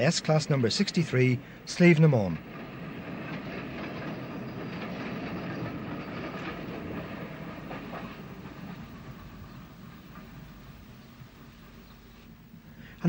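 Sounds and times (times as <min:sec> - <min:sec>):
train coaches rolling on rails: 0:00.0 - 0:13.0
faint wheel clicks over rail joints: 0:02.0 - 0:10.7.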